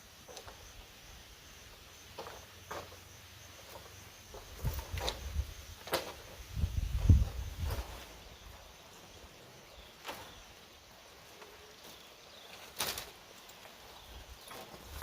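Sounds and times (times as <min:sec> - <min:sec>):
faint outdoor background: 0:00.0 - 0:15.0.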